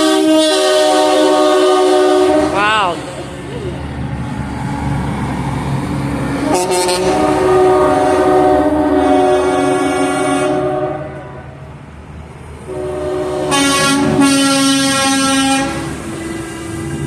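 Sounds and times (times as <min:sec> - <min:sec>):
truck air horns blowing: 0:00.0 - 0:03.4, 0:06.3 - 0:11.5, 0:12.7 - 0:16.2.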